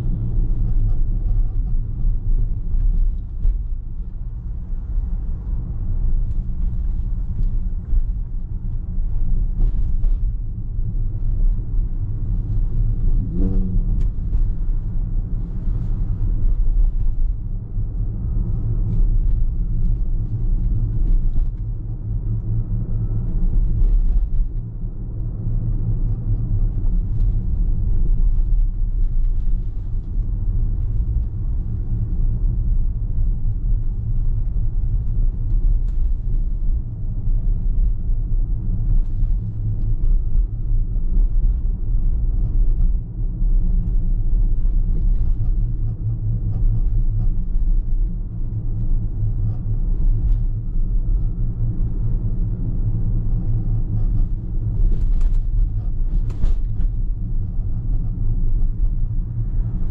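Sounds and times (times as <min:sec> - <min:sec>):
car driving rumble: 0:00.0 - 0:59.9.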